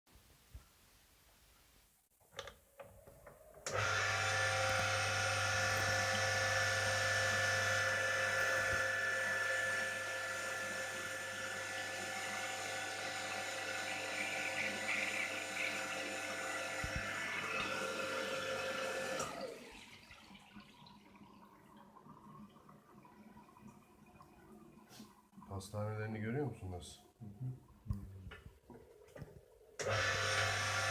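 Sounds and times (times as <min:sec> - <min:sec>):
electric motor humming and whining: 0:03.7 - 0:19.6, 0:29.8 - 0:30.9.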